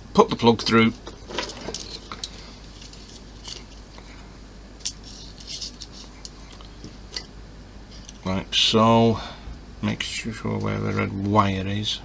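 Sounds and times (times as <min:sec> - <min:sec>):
plastic parts clicking and rustling: 0:01.0 - 0:04.0, 0:04.8 - 0:07.3.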